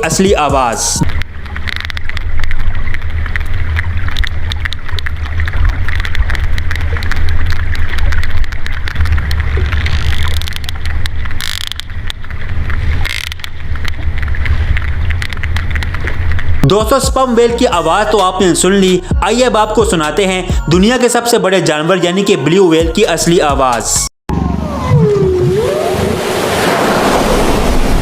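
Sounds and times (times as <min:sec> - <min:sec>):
sperm whale clicks: 0:00.0 - 0:17.0.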